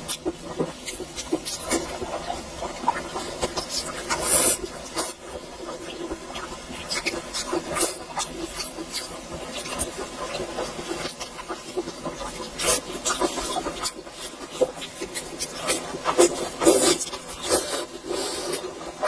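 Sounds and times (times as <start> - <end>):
wet chewing and smacking: 0.1 - 2.1, 5.8 - 10.4, 11.1 - 18.6.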